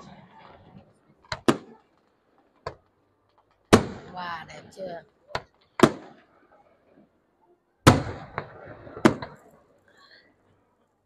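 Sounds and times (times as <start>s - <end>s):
fireworks bangs: 0.0s - 4.5s, 5.3s - 6.4s, 7.8s - 9.6s
firework crack: 0.0s - 6.5s, 7.8s - 9.9s.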